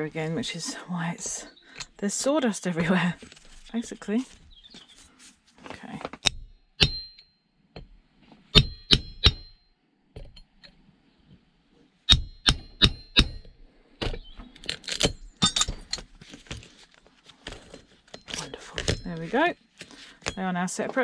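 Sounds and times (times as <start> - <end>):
hammer striking metal: 6.3 - 7.2, 8.6 - 9.6, 12.1 - 13.5
metal pieces clanking and rattling: 14.6 - 16.2.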